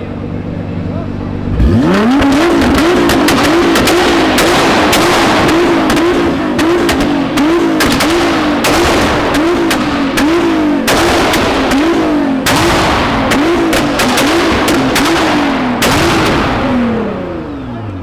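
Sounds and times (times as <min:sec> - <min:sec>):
sports car engine revving: 0:00.0 - 0:18.0
exhaust cracks and pops: 0:01.5 - 0:17.3.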